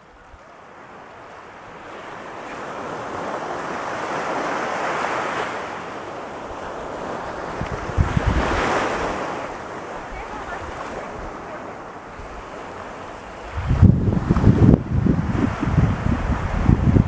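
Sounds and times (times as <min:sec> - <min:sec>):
ocean surf breaking on beach: 0:00.0 - 0:17.0
wind buffeting microphone: 0:06.4 - 0:17.0.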